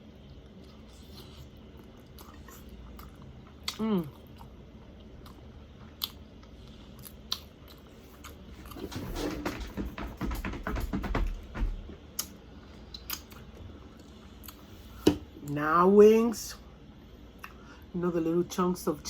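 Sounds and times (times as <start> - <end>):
chewing and biting chicken wings: 0.0 - 8.9.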